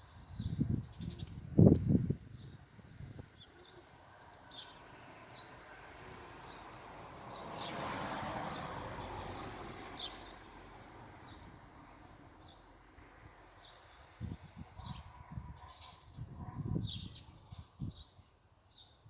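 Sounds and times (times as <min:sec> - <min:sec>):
small birds chirping: 0:00.0 - 0:05.7.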